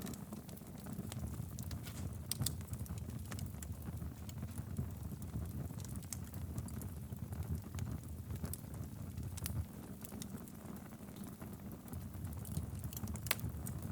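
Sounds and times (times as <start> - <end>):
fire crackles and pops: 0.0 - 13.9
low rumble of flames: 0.0 - 13.9.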